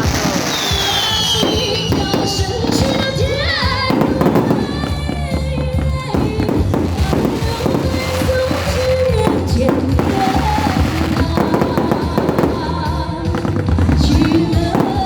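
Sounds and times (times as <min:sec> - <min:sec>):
fireworks bangs and crackles: 0:00.0 - 0:15.0
music playing: 0:00.0 - 0:15.0.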